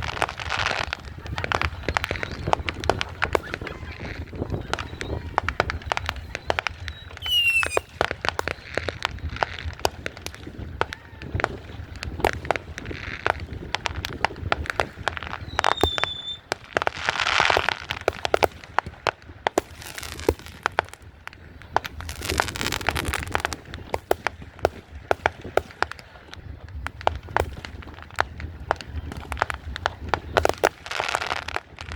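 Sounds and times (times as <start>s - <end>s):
firework whistle: 0.0s - 9.0s, 15.2s - 16.5s
firework crackling: 0.0s - 31.9s
fireworks banging: 0.0s - 31.9s.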